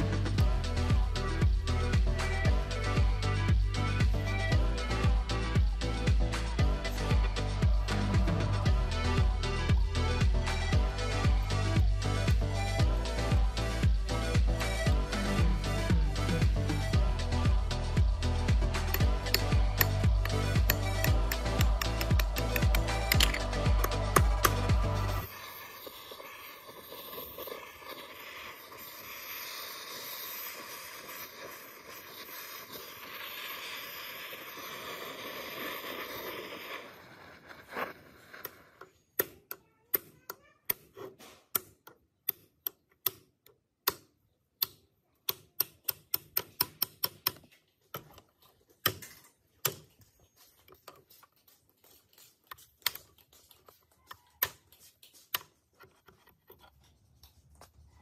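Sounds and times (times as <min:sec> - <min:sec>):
steady hiss: 0:25.2 - 0:38.8.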